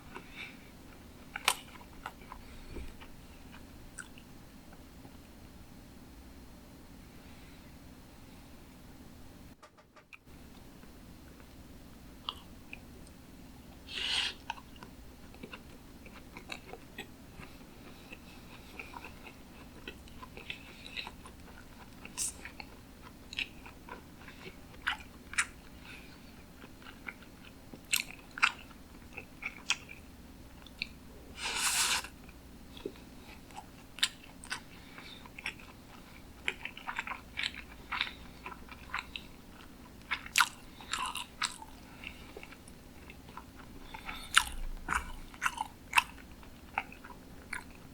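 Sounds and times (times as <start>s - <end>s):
close chewing with wet smacks: 14.4s - 30.0s, 32.2s - 47.9s.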